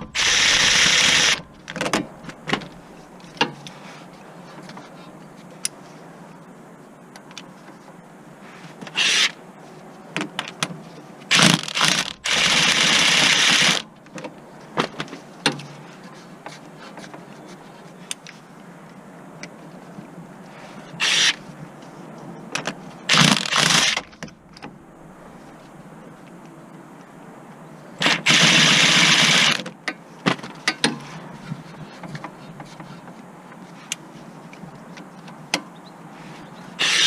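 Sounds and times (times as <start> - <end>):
car repair tool bursts: 0.0 - 1.5
steady background noise: 0.0 - 37.0.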